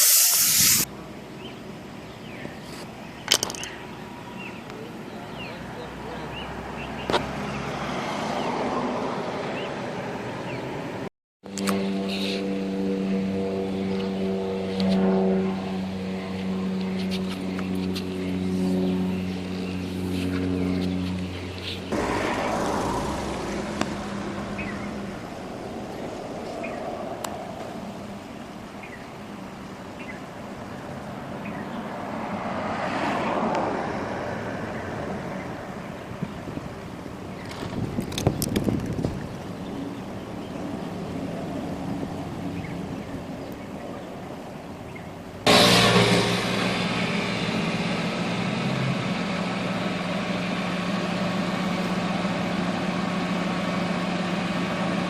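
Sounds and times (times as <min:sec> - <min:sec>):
highway traffic rushing: 0:00.0 - 0:55.0
vehicle passing close: 0:05.6 - 0:30.1, 0:30.7 - 0:43.5, 0:45.4 - 0:55.0
car engine starting and idling: 0:21.9 - 0:28.3.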